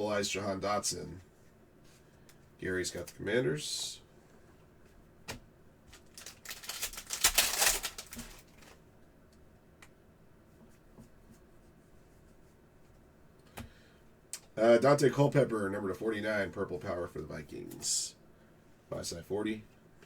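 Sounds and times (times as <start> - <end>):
cards flicking and rustling: 5.3 - 8.8.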